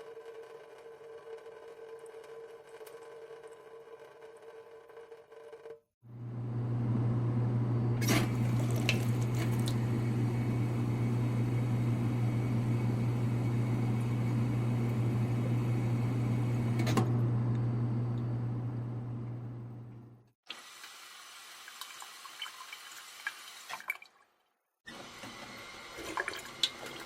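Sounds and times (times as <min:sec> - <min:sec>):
low machine hum: 0:06.1 - 0:20.3.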